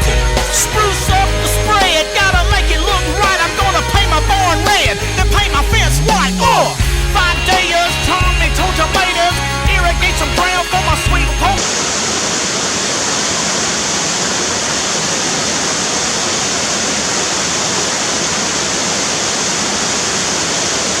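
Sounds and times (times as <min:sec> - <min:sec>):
heavy bass line: 0:00.0 - 0:11.6
song with singing: 0:00.0 - 0:11.6.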